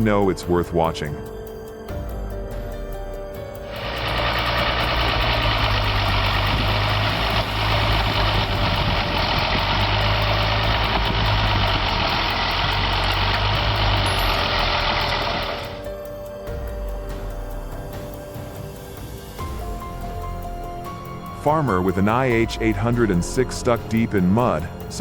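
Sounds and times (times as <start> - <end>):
loud hiss: 3.6 - 15.9
tractor engine running: 3.6 - 15.9.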